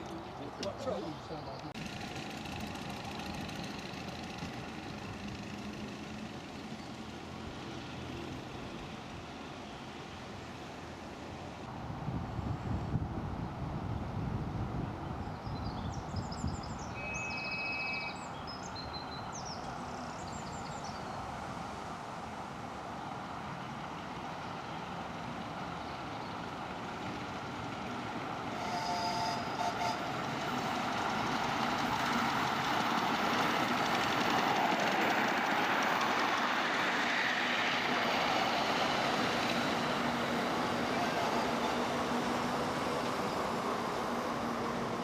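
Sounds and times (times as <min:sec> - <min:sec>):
birds chirping: 0:00.0 - 0:01.8, 0:15.0 - 0:21.4
miniature train running on track: 0:01.6 - 0:09.3, 0:23.8 - 0:45.0.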